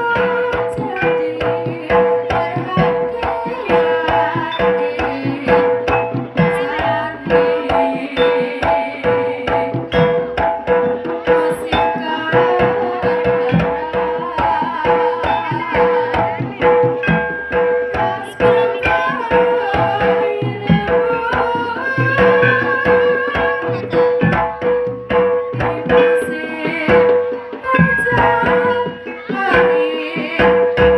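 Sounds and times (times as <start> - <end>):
hand drums beating fast rhythm: 0.0 - 30.9
higher gamelan melody: 0.0 - 30.9.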